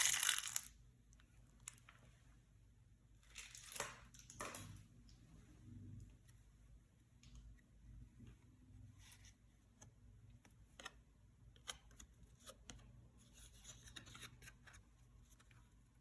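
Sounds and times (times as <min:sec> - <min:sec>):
trading cards rustling and clicking: 0:00.0 - 0:00.7.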